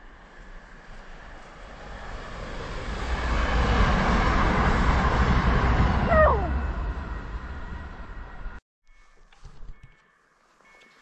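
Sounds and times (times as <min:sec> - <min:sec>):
electric train passing at speed: 0:00.0 - 0:08.6.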